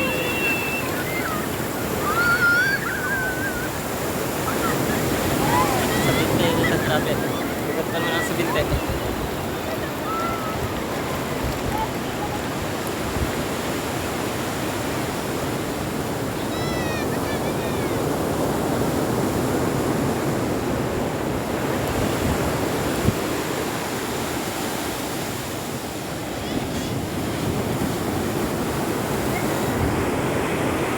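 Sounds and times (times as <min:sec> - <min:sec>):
faint high call: 0:00.0 - 0:01.4
sea surf washing on beach: 0:00.0 - 0:30.9.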